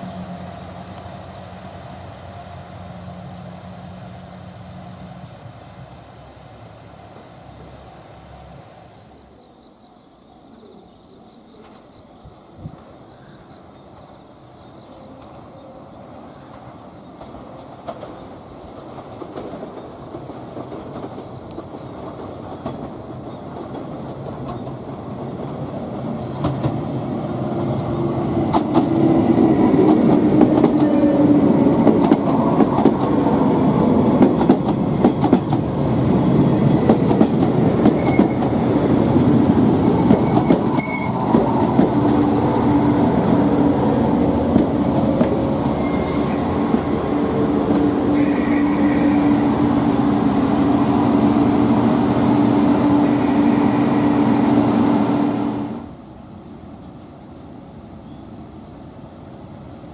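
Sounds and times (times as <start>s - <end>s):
low running hum of train: 0.0s - 59.9s
train wheels clattering over rail joints: 16.5s - 25.6s, 28.4s - 42.4s
high thin wheel squeal: 37.9s - 38.8s, 40.2s - 41.2s, 44.7s - 47.0s, 48.1s - 49.5s.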